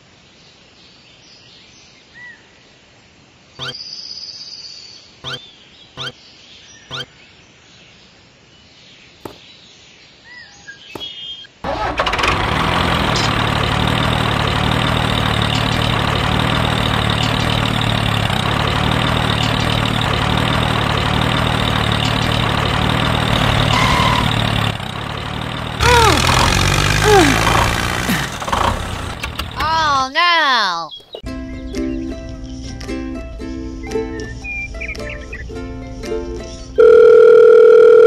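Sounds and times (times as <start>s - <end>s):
tractor engine starting: 11.6s - 30.0s
tractor engine chugging: 11.7s - 30.0s.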